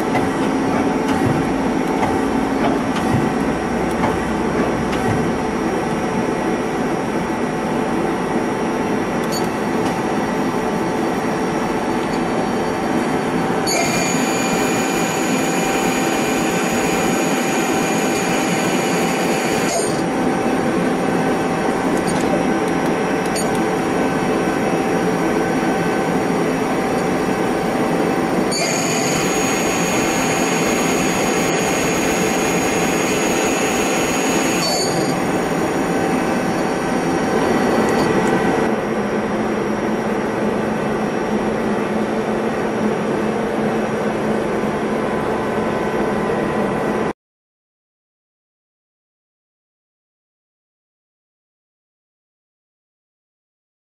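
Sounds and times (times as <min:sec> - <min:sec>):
high machine whine: 0:00.0 - 0:47.1
lathe humming: 0:10.6 - 0:38.7.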